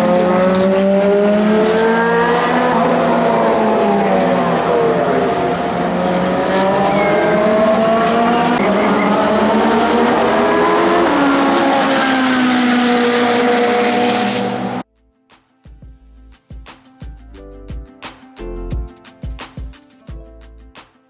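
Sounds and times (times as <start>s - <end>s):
race car engines running hard: 0.0s - 14.8s.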